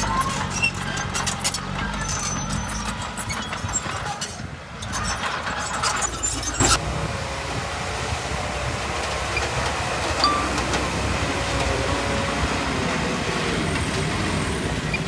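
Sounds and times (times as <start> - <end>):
heavy machinery running: 6.7 - 15.0
sharp metallic clank: 10.2 - 11.0.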